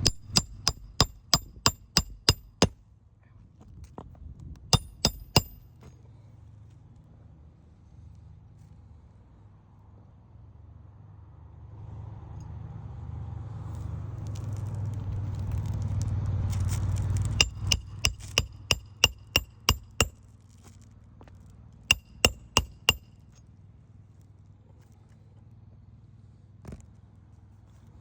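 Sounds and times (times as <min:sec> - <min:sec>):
hammer striking roofing nails: 0:00.0 - 0:02.8, 0:04.8 - 0:05.6, 0:17.4 - 0:20.2, 0:21.9 - 0:23.1.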